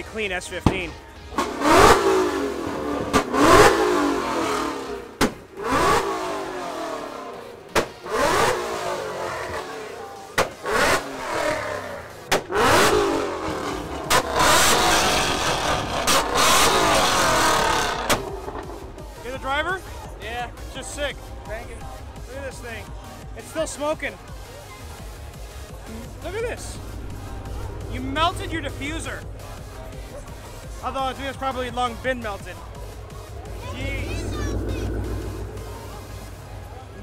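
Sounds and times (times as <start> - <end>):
car engine revving hard: 1.4 - 22.2, 25.7 - 37.0.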